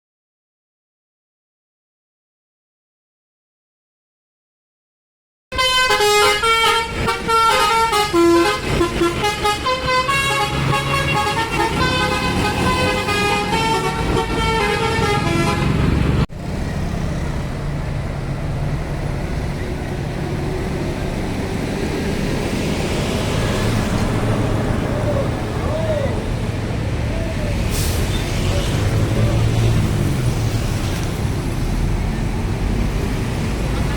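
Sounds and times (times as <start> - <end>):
multi-tone bus air horn melody: 5.5 - 16.1
bus engine hum: 5.5 - 33.9
road noise: 5.5 - 33.9.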